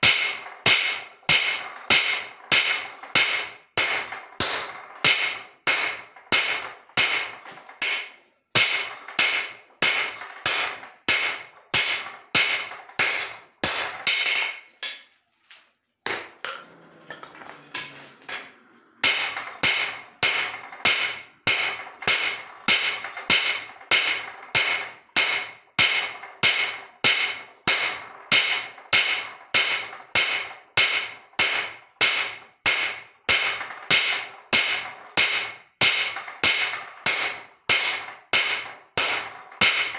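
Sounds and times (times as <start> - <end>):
hammer striking steel on anvil: 0.0 - 15.1, 16.1 - 39.9.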